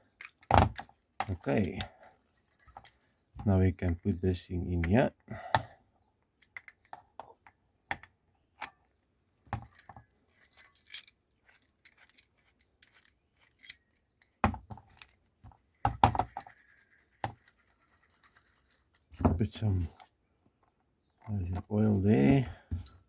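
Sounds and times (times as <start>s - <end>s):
metal parts clinking: 0.0s - 5.0s, 9.6s - 20.0s, 22.0s - 23.0s.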